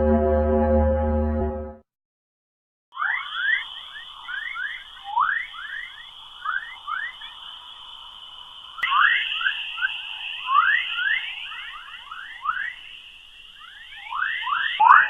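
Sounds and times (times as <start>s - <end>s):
quick rising chirps: 3.0s - 15.0s
steady high hiss: 3.0s - 15.0s.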